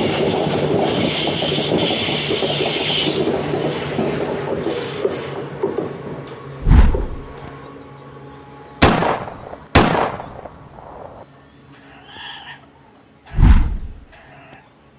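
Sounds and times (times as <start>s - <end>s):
train wagons rumbling: 0.0s - 7.6s
dull low thump: 6.6s - 7.4s, 13.4s - 14.1s.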